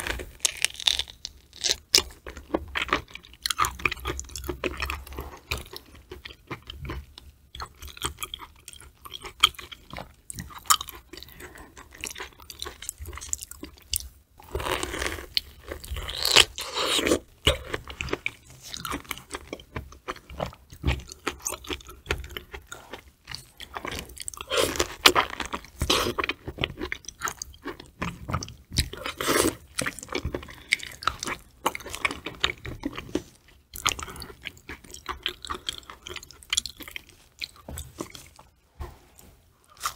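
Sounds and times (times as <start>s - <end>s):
close chewing of raw fish: 0.0s - 38.5s.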